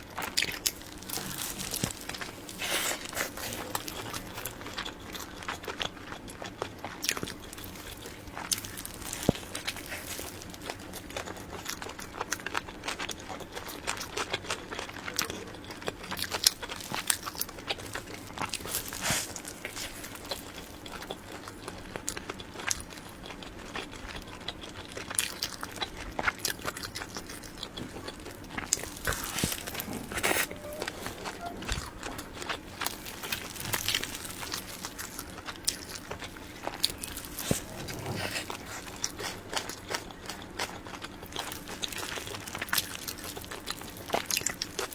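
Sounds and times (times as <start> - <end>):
chewing cake with wet smacks: 0.0 - 44.9
breathy noise: 27.8 - 35.1, 36.2 - 39.5.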